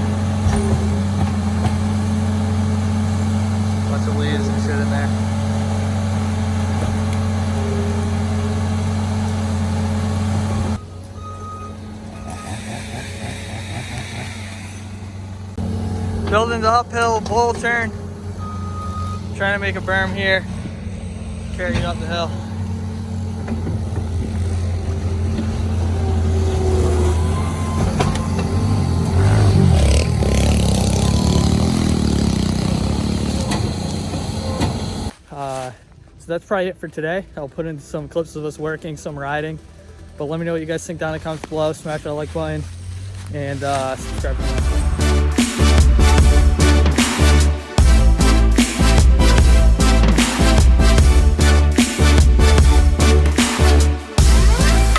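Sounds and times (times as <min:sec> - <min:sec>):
earth-moving machine engine: 0:00.0 - 0:35.2, 0:36.0 - 0:54.9
short high beep: 0:10.8 - 0:12.6.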